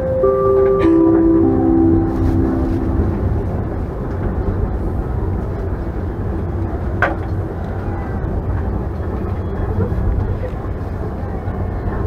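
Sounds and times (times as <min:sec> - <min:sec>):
announcement chime: 0:00.0 - 0:04.0
train carriage rumbling on rails: 0:00.0 - 0:12.0.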